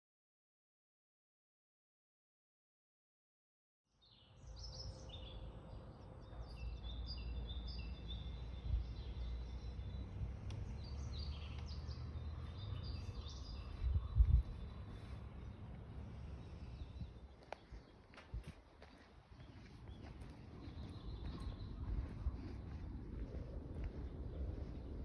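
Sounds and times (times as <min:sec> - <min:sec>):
small birds chirping: 0:04.0 - 0:25.0
low rumbling noise: 0:04.4 - 0:18.6, 0:19.4 - 0:25.0.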